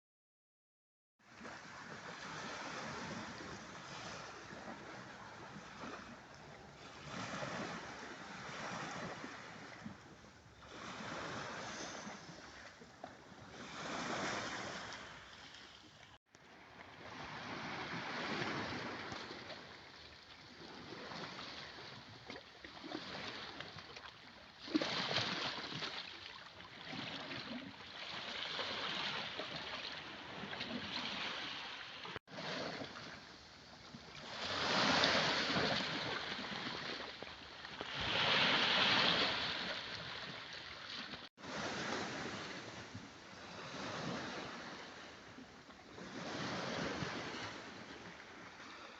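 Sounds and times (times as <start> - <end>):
sea waves washing onto shore: 26.9 - 45.2.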